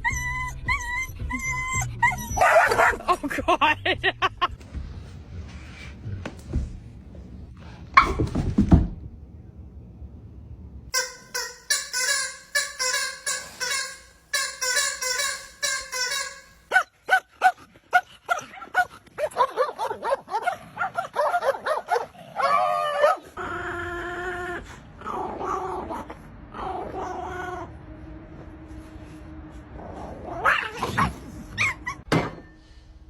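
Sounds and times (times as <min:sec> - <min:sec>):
dogs barking and yipping: 0:11.0 - 0:17.2.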